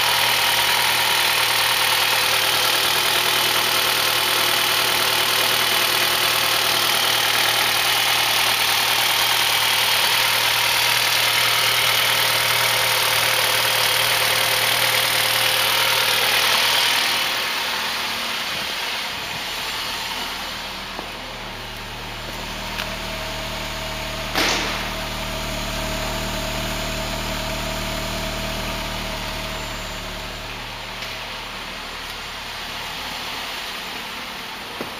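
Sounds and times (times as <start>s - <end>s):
car engine idling: 0.0s - 34.9s
sharp click: 24.4s - 24.9s.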